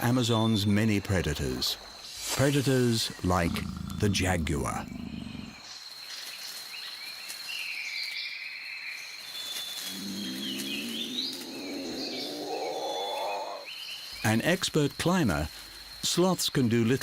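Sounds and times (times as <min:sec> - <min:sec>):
high insect drone: 0:00.0 - 0:07.5, 0:09.0 - 0:17.0
bird chirps and gliding calls: 0:02.8 - 0:07.0, 0:07.6 - 0:14.3
low animal call rising: 0:03.2 - 0:05.6, 0:09.9 - 0:13.7.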